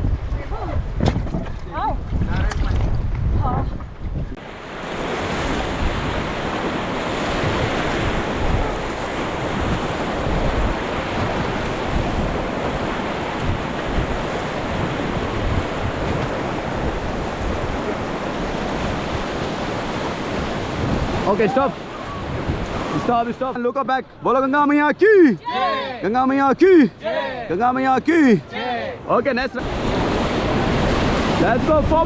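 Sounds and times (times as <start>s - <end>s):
wind buffeting microphone: 0.0s - 23.4s, 29.6s - 32.0s
whitewater rushing and splashing: 4.4s - 32.0s.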